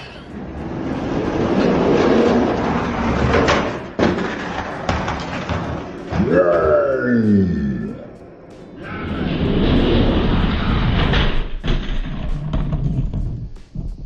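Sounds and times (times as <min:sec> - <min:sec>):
toy trucks clacking and crashing: 0:01.3 - 0:06.2.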